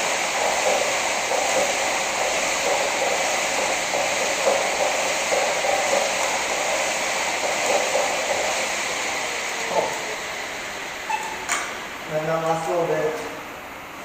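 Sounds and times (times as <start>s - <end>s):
fan flywheel whirring: 0.0s - 14.0s.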